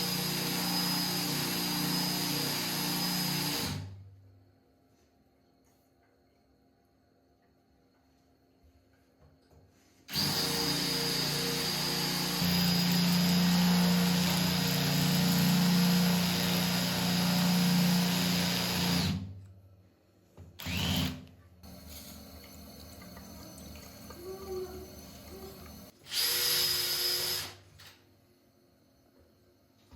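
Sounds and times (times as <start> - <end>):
electric drill running: 0.0 - 3.9, 10.1 - 19.2, 20.6 - 21.2, 24.2 - 27.6.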